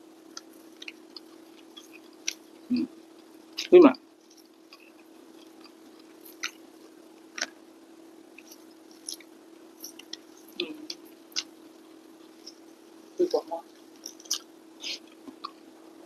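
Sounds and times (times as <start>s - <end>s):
faint steady hum: 0.0s - 16.0s
person chewing with wet smacks: 0.3s - 2.6s, 4.4s - 6.7s, 8.4s - 12.7s, 13.7s - 15.7s.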